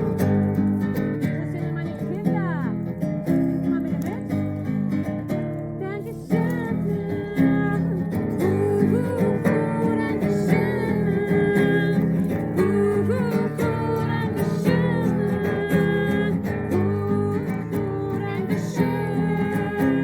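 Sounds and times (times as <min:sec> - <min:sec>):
person singing: 0:00.0 - 0:01.1, 0:05.8 - 0:20.0
acoustic guitar strumming: 0:00.0 - 0:20.0.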